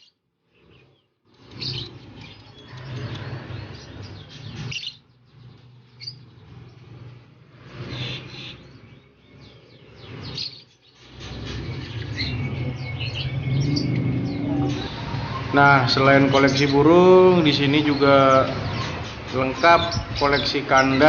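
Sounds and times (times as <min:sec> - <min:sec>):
songbirds chirping and trilling: 0:00.0 - 0:21.0.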